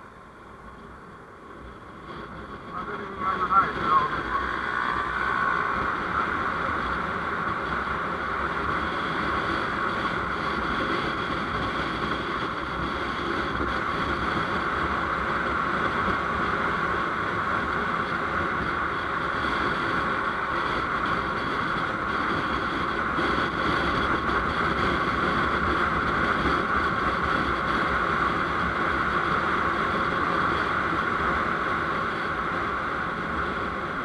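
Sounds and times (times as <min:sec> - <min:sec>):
motorcycle engine: 0:01.6 - 0:33.9
wind rushing past: 0:02.2 - 0:08.5.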